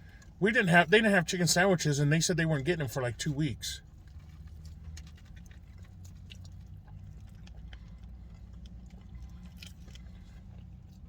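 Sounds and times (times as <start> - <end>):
person chewing food: 3.8 - 11.0.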